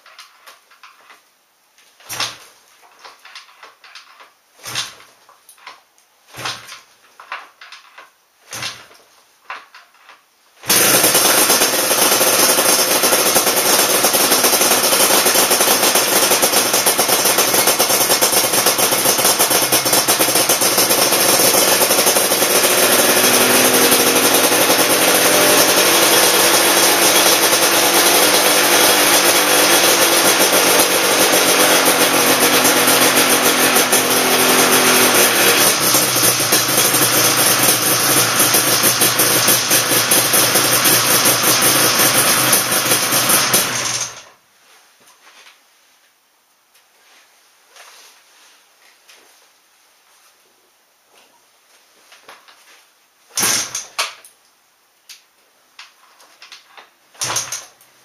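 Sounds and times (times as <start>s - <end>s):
two-stroke engine running: 10.6s - 44.2s.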